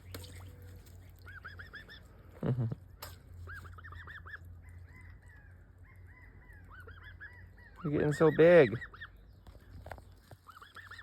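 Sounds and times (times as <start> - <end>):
goose honk: 3.4 - 4.5, 10.5 - 11.0.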